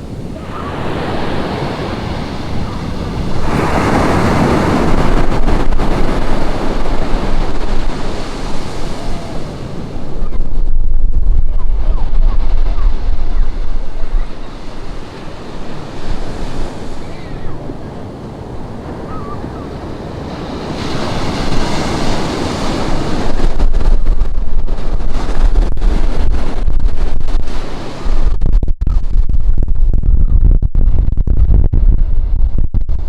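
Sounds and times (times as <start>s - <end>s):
ocean waves breaking: 0.0s - 28.3s
wind buffeting microphone: 0.0s - 33.0s.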